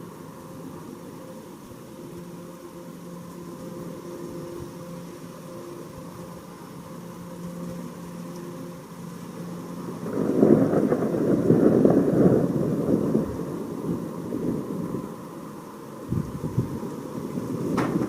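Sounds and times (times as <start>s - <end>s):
thunder rumbling: 9.0s - 18.0s.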